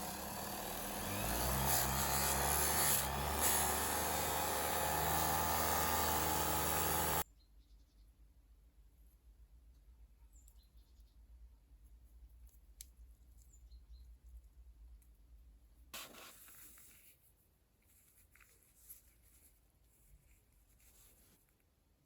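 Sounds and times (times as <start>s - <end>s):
soft rustle: 16.0s - 21.9s.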